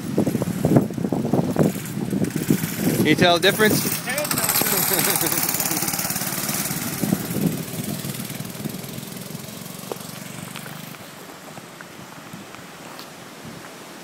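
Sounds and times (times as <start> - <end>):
minibike engine running: 0.0 - 11.2
faint outdoor hiss: 0.0 - 14.0.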